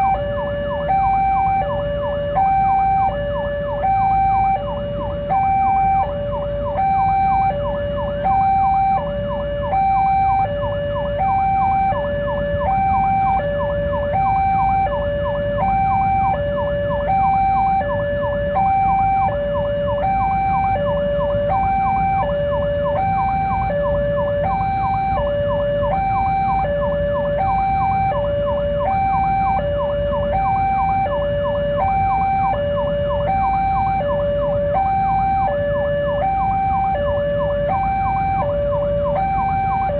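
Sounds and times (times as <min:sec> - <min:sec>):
continuous low rumble: 0:00.0 - 0:39.9
level crossing two-note alarm: 0:00.0 - 0:39.9.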